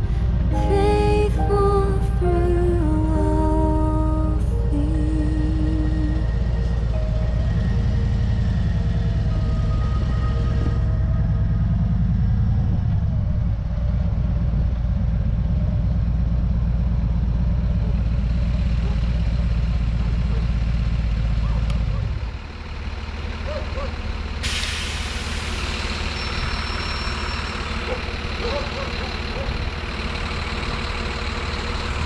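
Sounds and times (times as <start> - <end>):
vehicle engine rumbling: 0.0 - 32.0
loud air hiss: 24.4 - 26.2.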